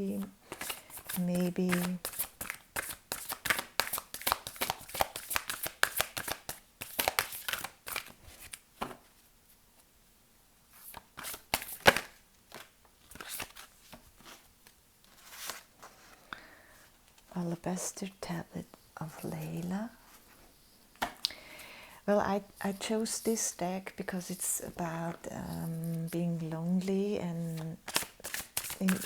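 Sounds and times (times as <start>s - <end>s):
cards being shuffled: 0.2s - 9.1s, 10.8s - 16.0s, 27.5s - 29.0s.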